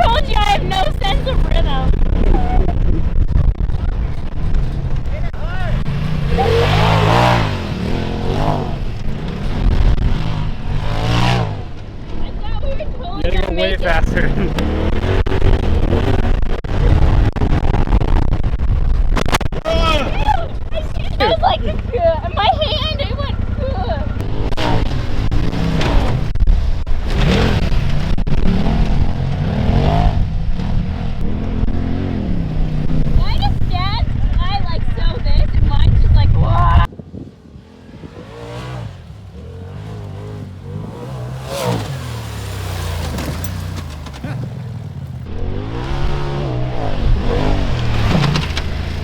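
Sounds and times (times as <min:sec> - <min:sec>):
engine revving hard: 0:05.4 - 0:11.8, 0:13.2 - 0:17.8, 0:23.8 - 0:26.3, 0:27.1 - 0:33.8, 0:37.5 - 0:49.0.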